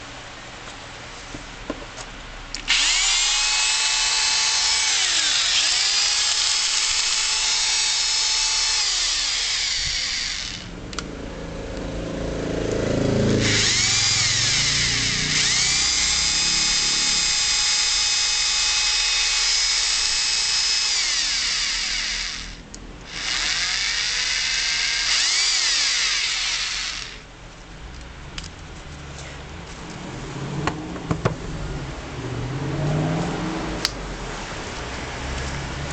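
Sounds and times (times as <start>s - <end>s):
hammer drill motor whining: 2.6s - 10.8s, 13.4s - 27.3s.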